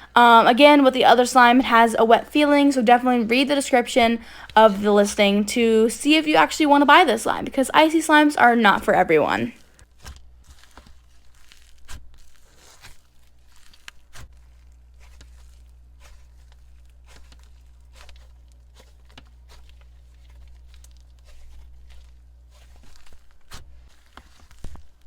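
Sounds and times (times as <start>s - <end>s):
slime squished by hand: 9.8s - 25.0s.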